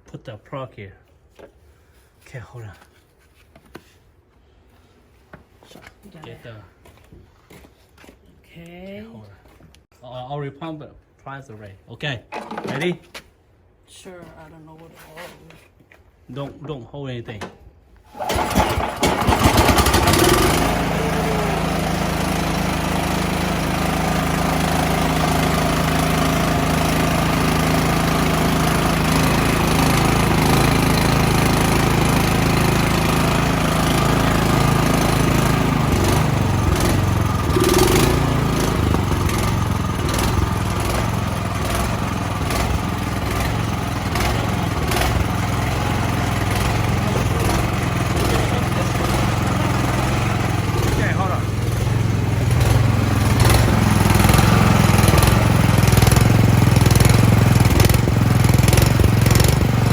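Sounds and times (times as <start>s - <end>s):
small gas engine running: 18.1s - 59.9s.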